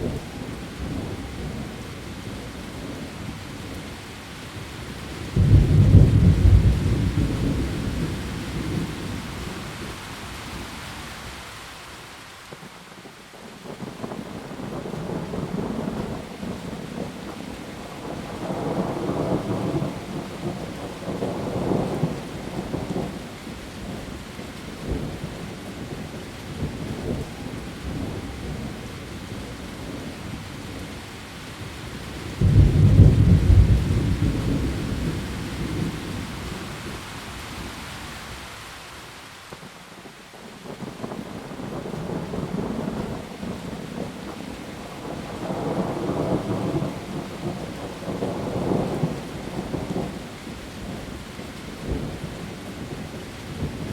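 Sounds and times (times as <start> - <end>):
heavy rain: 0.0 - 53.9
rolling thunder: 5.3 - 9.6, 32.3 - 36.9.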